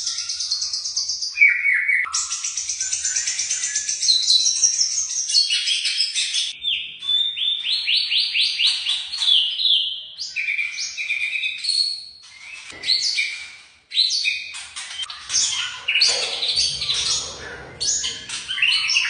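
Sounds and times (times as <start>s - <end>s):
songbird singing varied song: 0.0s - 13.4s.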